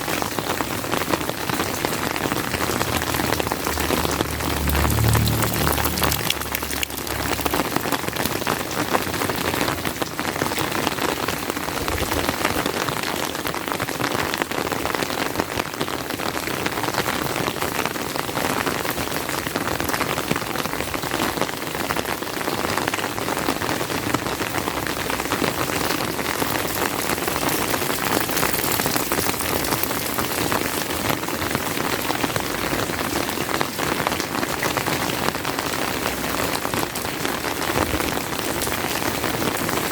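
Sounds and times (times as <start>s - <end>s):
steady rain falling: 0.0s - 39.9s
low rumble: 1.7s - 8.8s.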